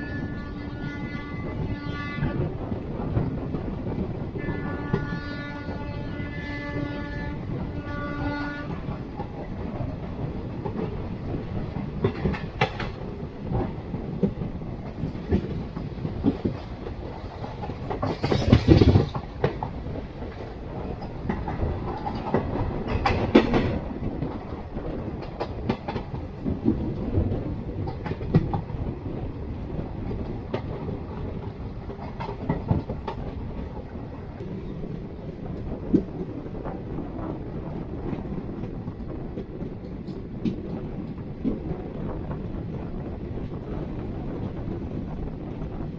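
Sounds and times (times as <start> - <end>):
train horn: 0.0 - 2.5, 4.4 - 8.9
train wheels clattering on rails: 0.0 - 45.9.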